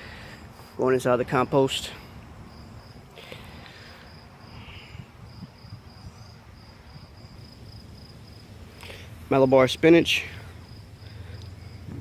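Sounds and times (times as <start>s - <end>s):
insect chirping: 2.4s - 12.0s
low rumble: 11.6s - 12.0s.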